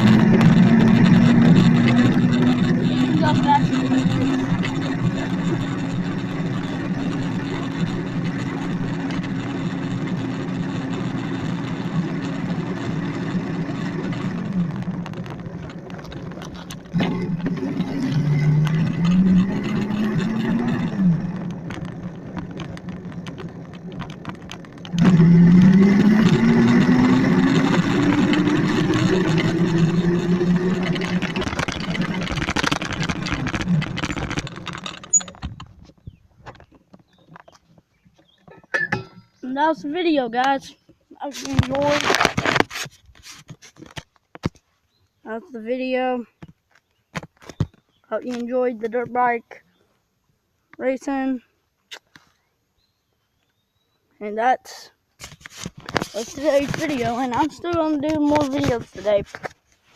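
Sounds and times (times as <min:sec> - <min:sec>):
electric motor whining: 0:00.0 - 0:35.6.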